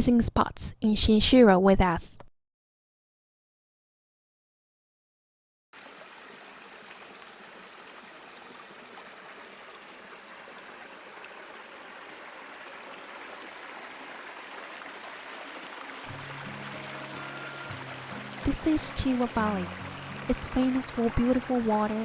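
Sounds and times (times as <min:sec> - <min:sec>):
river water flowing: 0:05.8 - 0:22.0
soft music: 0:16.1 - 0:22.0.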